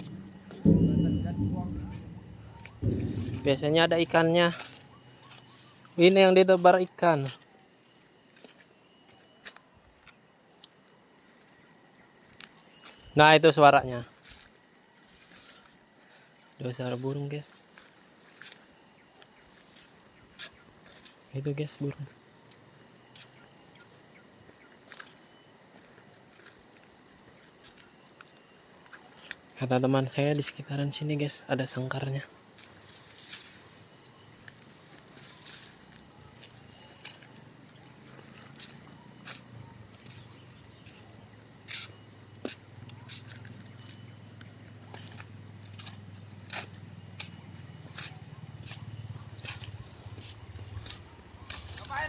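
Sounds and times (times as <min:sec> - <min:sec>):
low engine-like hum: 0:00.0 - 0:03.5
faint high buzz: 0:00.0 - 0:04.3
insect drone: 0:00.0 - 0:52.0
footsteps crunching on dry ground: 0:14.0 - 0:15.9, 0:32.5 - 0:52.0.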